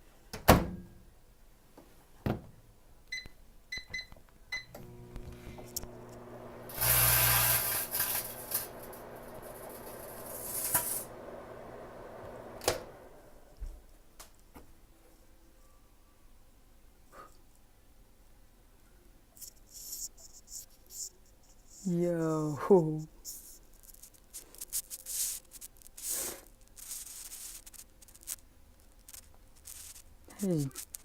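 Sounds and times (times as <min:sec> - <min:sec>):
microwave stopping click: 0:04.6 - 0:13.3
microwave humming: 0:04.6 - 0:13.6.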